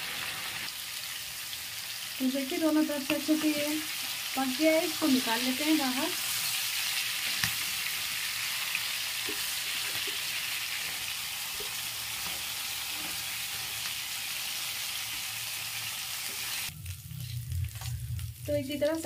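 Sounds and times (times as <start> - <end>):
meat sizzling in oil: 0.0 - 19.0.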